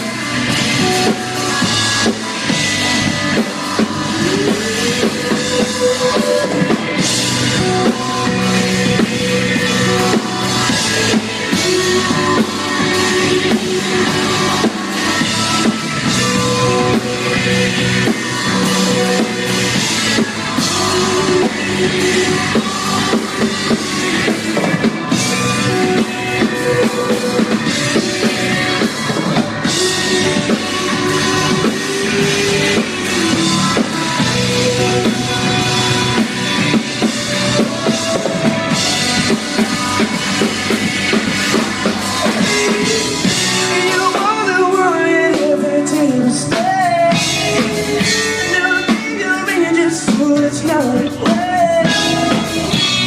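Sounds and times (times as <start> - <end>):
drum kit: 0.0 - 53.0
live rock band playing: 0.0 - 53.0.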